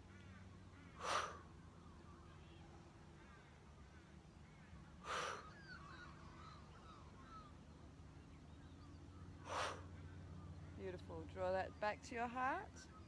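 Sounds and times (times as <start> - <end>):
low steady hum: 0.0 - 13.0
faint bird calls: 0.1 - 7.7, 8.6 - 10.8
short breaths: 1.0 - 1.5, 5.0 - 5.5, 9.4 - 10.0.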